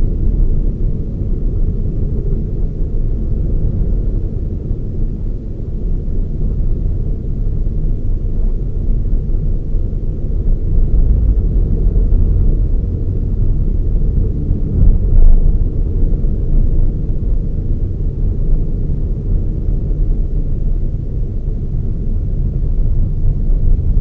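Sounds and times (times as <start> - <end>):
car engine and road noise: 10.0 - 24.0.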